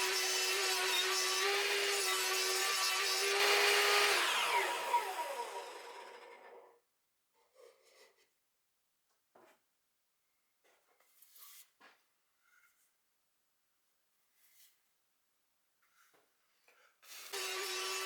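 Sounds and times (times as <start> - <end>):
table saw sawing wood: 0.0 - 6.7, 17.2 - 18.0
saw blade spinning down: 2.5 - 6.7.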